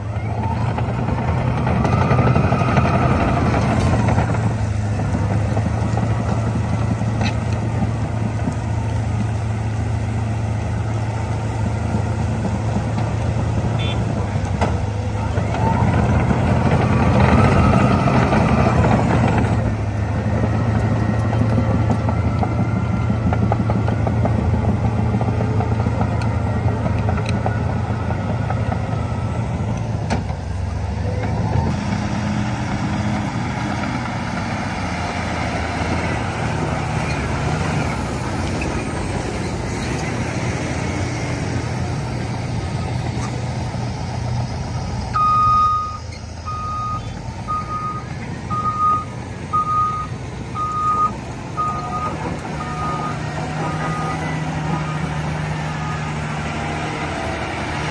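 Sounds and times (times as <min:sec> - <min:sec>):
diesel machine running: 0:00.0 - 0:57.9
reversing alarm beeping: 0:45.2 - 0:56.4.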